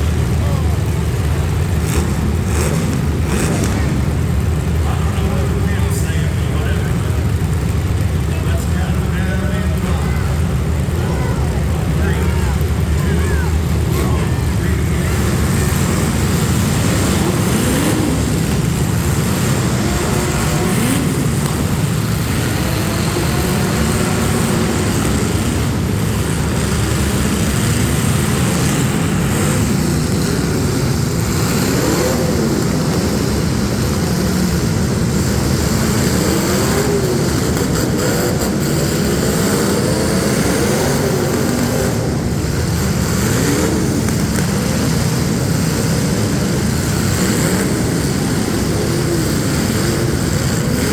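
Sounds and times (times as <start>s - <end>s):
car engines revving: 0.0s - 50.9s.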